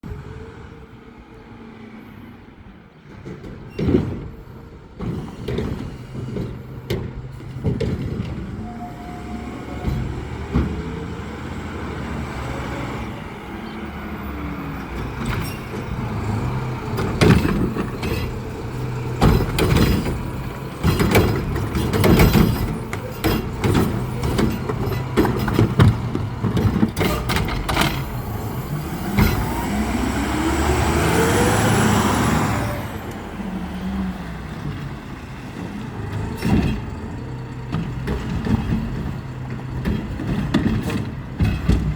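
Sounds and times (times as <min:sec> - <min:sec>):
trash bangs and clatters: 0:03.0 - 0:08.7, 0:09.7 - 0:11.4, 0:14.8 - 0:30.0, 0:34.7 - 0:41.9
garbage truck engine running: 0:03.0 - 0:41.9.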